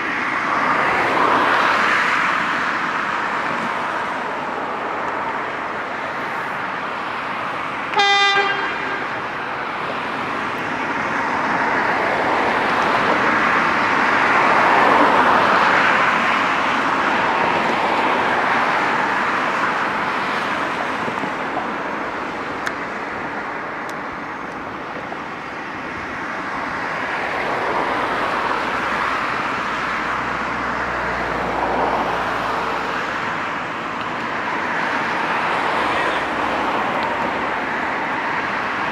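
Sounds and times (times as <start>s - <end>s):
train rumbling past on rails: 0.0s - 38.9s
locomotive horn blast: 7.9s - 9.6s.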